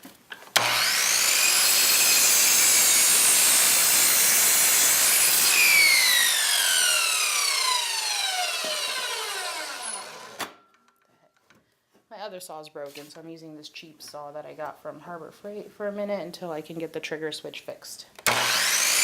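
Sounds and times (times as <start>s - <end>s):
power saw cutting wood: 0.5s - 10.6s, 18.2s - 19.0s
saw motor coasting down whine: 0.6s - 10.5s, 18.3s - 19.0s.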